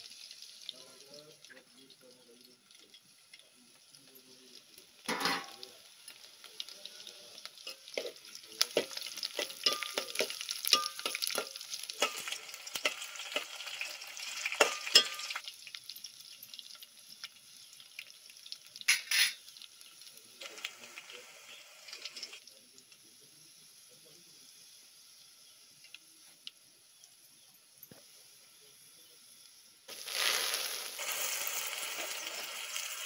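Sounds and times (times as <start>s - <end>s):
garlic sizzling in hot oil: 0.0s - 33.0s
spoon scraping against pot: 8.8s - 13.5s, 18.9s - 19.4s.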